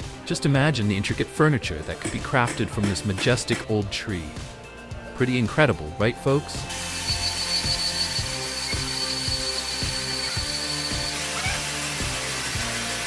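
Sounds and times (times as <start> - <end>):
background music with steady beat: 0.0 - 13.0
power tool whining: 6.7 - 13.0.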